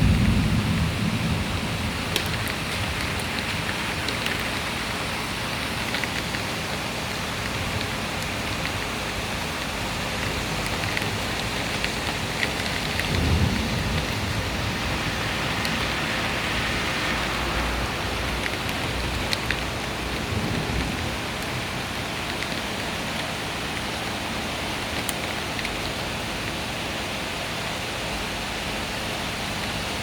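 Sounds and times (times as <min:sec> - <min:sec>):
low rumble of thunder: 0:00.0 - 0:05.5, 0:09.9 - 0:23.0
heavy rain pattering on hard surfaces: 0:00.0 - 0:30.0.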